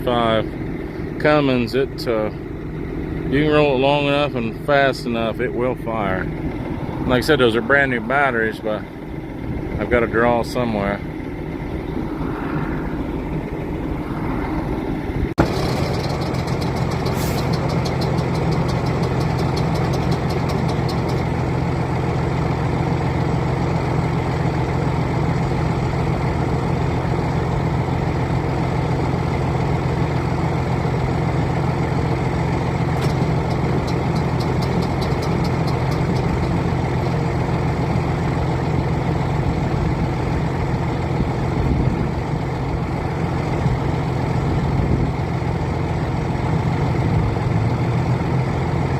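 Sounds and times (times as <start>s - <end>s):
diesel truck engine running: 0.0s - 48.9s
fast ticking: 15.4s - 21.4s, 33.0s - 37.1s.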